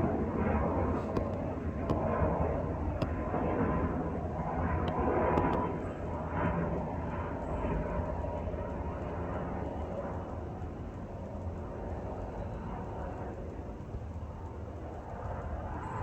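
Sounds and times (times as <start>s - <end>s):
jet airliner rumbling: 0.0s - 16.0s
faint clicks: 4.8s - 5.7s.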